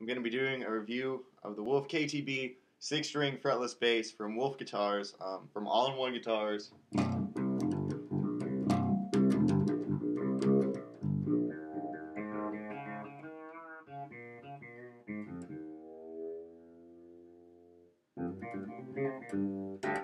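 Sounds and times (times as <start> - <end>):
fretless bass guitar notes: 6.9 - 20.0.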